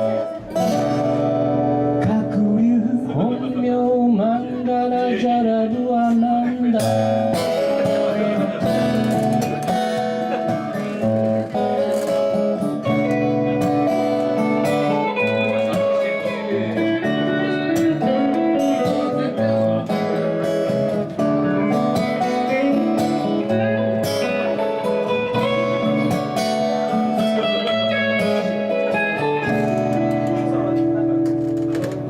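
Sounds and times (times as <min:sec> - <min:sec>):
instrumental guitar band music: 0:00.0 - 0:32.0.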